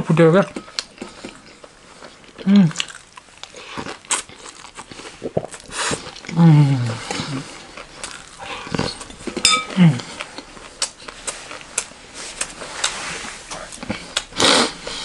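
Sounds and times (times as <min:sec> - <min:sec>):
crunchy chewing: 0:00.6 - 0:13.0
person humming: 0:06.3 - 0:07.4, 0:09.6 - 0:10.2
metal spoon clinking glass bowl: 0:08.4 - 0:09.8.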